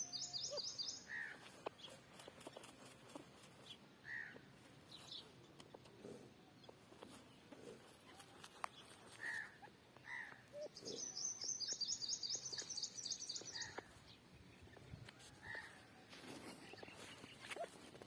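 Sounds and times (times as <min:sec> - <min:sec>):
bird chirps: 0:00.0 - 0:02.7, 0:08.1 - 0:15.8.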